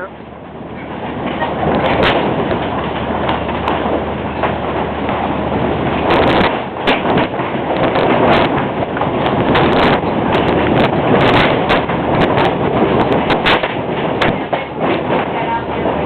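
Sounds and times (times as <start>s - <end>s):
wind blasting microphone: 0.0s - 16.0s.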